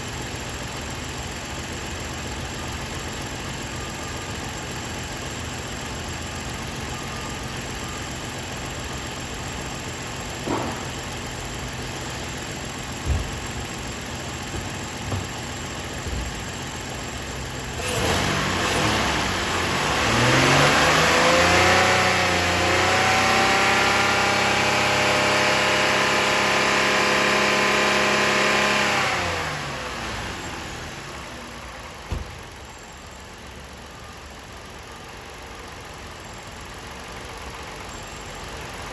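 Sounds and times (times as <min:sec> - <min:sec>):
engine idling and revving: 0:00.0 - 0:38.9
sharp knocks: 0:10.4 - 0:10.9.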